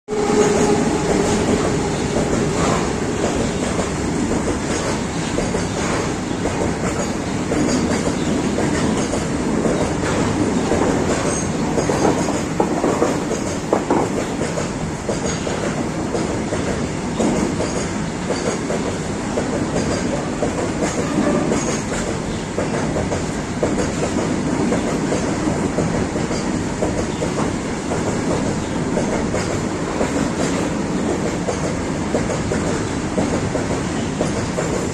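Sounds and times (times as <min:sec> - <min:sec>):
freight train rumbling past: 0:00.1 - 0:34.9
wagon clanks and squeals: 0:11.2 - 0:12.3.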